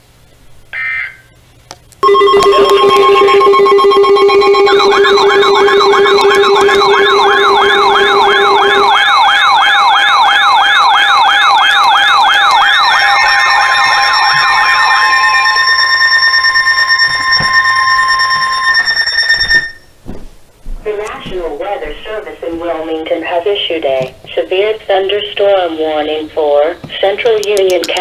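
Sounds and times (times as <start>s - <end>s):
warbling electronic alert: 2.0s - 19.8s
steady high tone: 2.0s - 19.9s.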